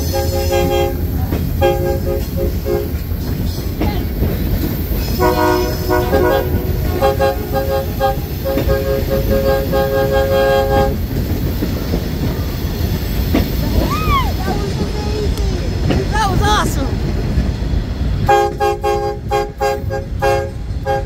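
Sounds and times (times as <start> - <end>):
train horn blasts: 0.0 - 3.1, 5.2 - 11.1, 18.2 - 21.0
train rumbling: 0.0 - 21.0.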